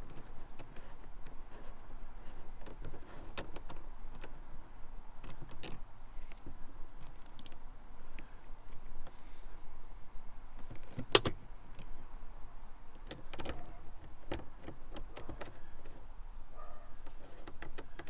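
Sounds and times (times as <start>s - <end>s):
small clicks and knocks: 0.0s - 4.4s, 5.2s - 9.2s, 10.5s - 12.0s, 12.9s - 16.1s, 17.0s - 18.0s.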